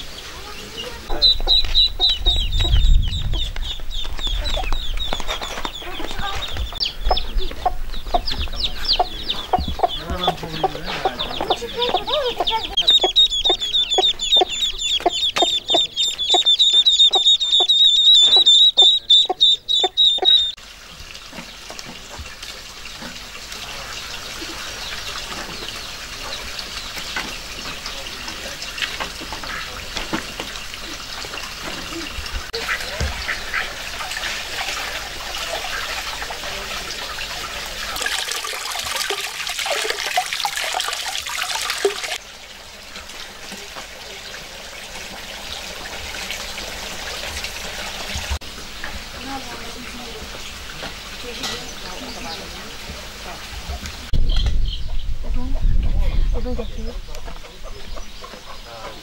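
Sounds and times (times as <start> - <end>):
high-pitched peeping calls: 0.0 - 20.6
chickens clucking: 0.0 - 42.3, 43.0 - 59.0.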